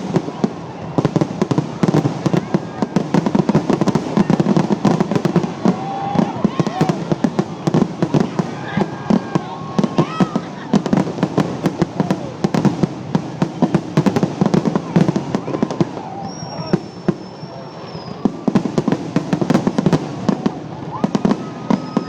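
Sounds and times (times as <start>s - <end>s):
fireworks cracking and popping: 0.0s - 22.0s
high firework whistle: 15.1s - 22.0s
low firework whistle: 15.4s - 22.0s.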